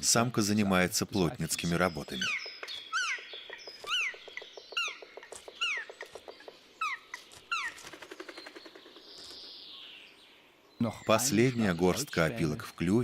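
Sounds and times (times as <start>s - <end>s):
woodpecker tapping on wood: 2.2s - 9.5s
short falling bird calls: 2.2s - 10.0s.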